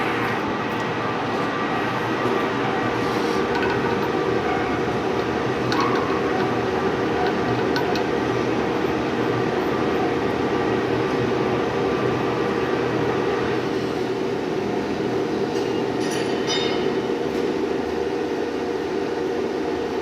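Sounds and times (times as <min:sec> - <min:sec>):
lathe machine hum: 0:00.0 - 0:16.0.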